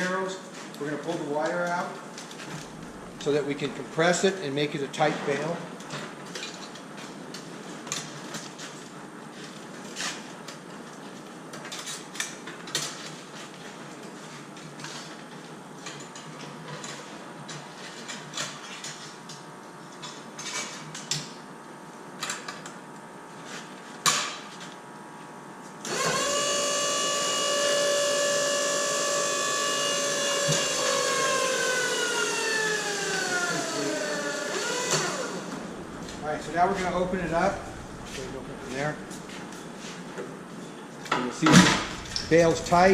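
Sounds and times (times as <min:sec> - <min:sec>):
electric motor whine: 0:25.9 - 0:39.5, 0:41.8 - 0:42.9.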